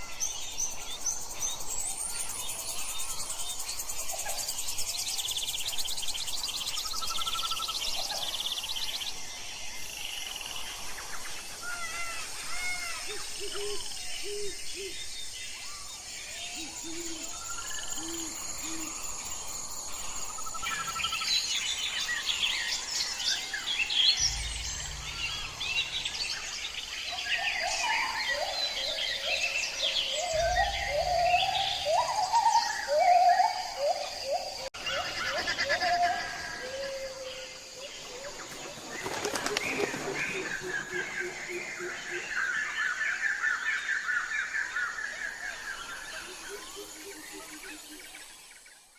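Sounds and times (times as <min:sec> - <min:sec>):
birds chirping: 0:00.0 - 0:48.4
low bird notes: 0:24.1 - 0:29.0, 0:30.2 - 0:34.0.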